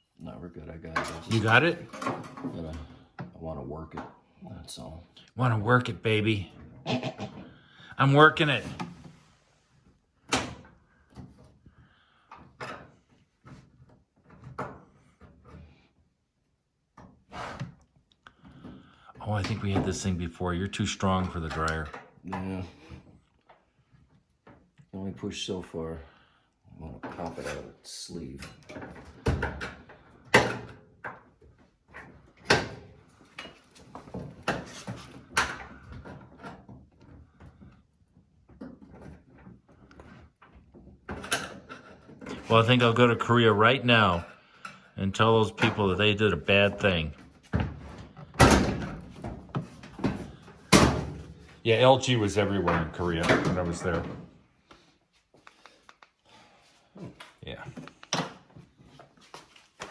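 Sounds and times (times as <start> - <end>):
dryer panels knocking and clunking: 47.4 - 51.5.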